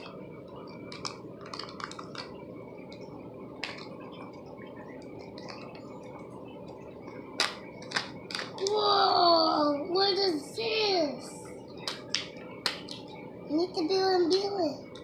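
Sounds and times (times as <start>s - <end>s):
wrapper crinkling and clicking: 0.6s - 3.0s, 3.6s - 4.3s, 5.0s - 6.2s, 7.4s - 8.7s.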